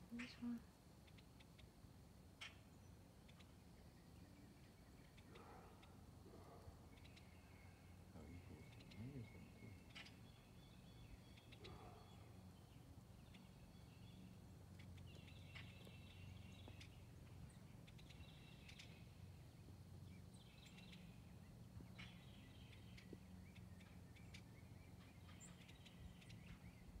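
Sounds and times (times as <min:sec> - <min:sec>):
distant birds chirping: 0:00.0 - 0:27.0.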